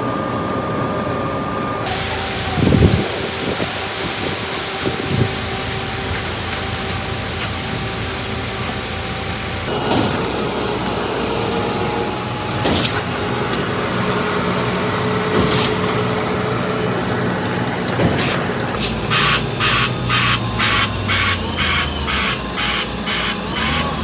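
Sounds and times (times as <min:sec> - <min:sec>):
heavy truck engine running: 0:01.9 - 0:14.8.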